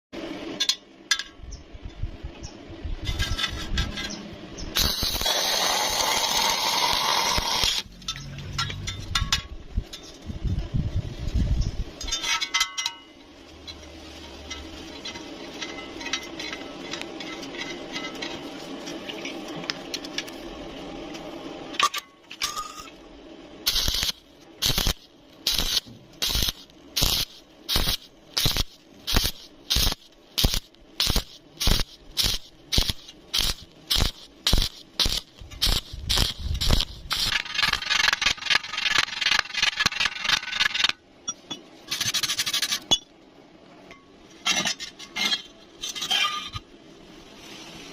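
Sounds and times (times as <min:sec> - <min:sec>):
steady noise: 0:00.2 - 0:47.9
welding arc crackling: 0:04.7 - 0:09.2, 0:22.4 - 0:41.0.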